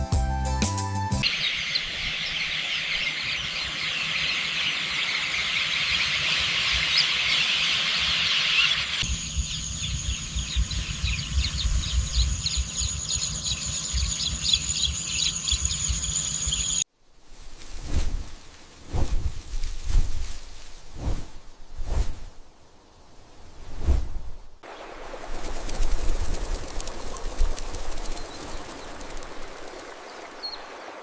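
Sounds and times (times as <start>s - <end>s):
birds chirping: 1.2s - 16.9s, 24.6s - 31.0s.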